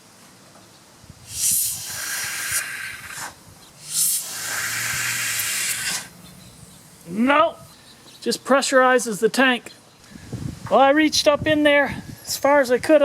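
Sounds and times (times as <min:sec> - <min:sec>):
air hissing into fuel tank: 0:01.2 - 0:06.2.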